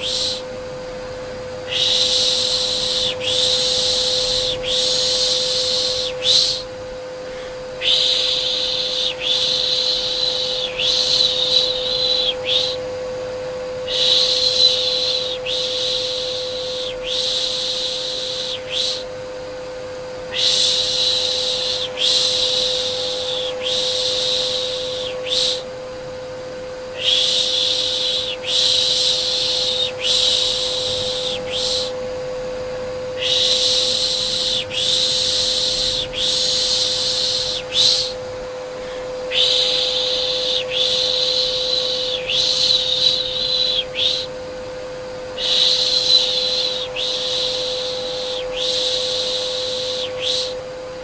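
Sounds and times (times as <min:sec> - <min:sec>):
person shushing: 0:00.0 - 0:00.5, 0:01.7 - 0:12.8, 0:20.3 - 0:25.7, 0:26.9 - 0:32.0, 0:38.8 - 0:44.3
vacuum cleaner hum: 0:00.0 - 0:51.0.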